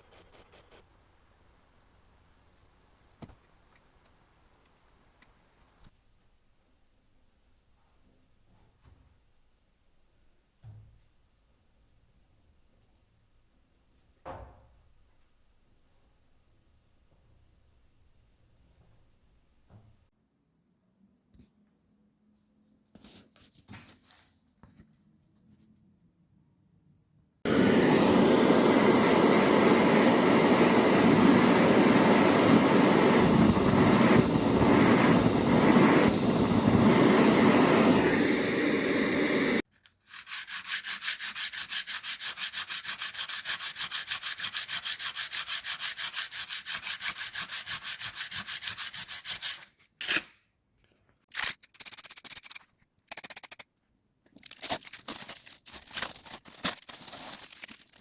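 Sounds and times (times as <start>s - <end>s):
loud rasping sanding noise: 40.1s - 49.6s.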